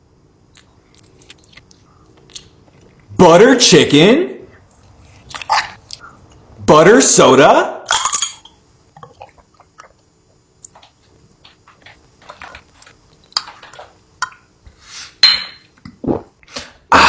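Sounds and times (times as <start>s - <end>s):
dishes and utensils clinking: 15.2s - 15.7s.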